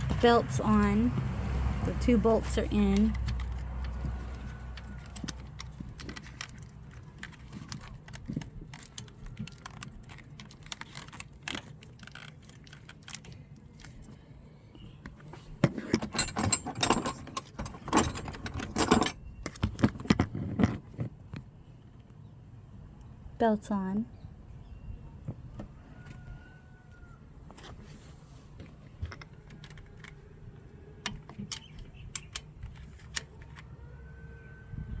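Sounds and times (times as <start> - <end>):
metal tools clinking and rattling: 1.8 - 13.2, 15.6 - 20.8, 31.1 - 33.6.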